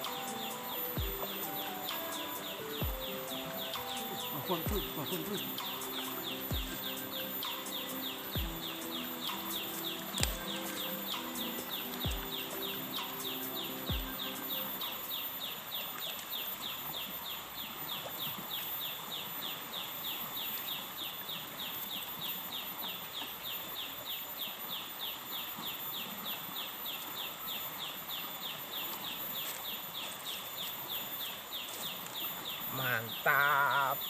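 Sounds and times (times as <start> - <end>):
constant hiss: 0.0 - 34.0.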